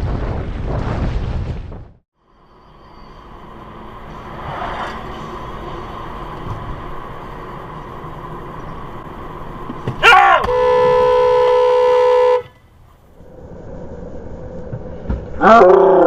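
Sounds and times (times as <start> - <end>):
car driving noise: 2.2 - 15.4
loud car horn blast: 10.2 - 12.6.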